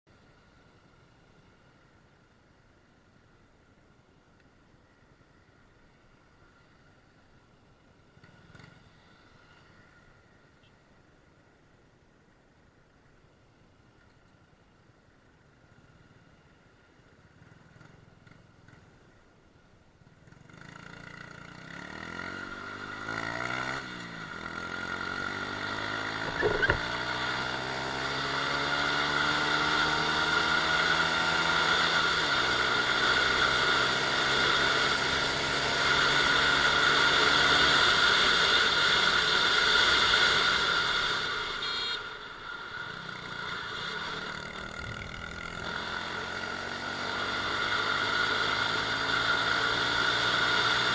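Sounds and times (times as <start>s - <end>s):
motorcycle engine accelerating: 20.2s - 50.9s.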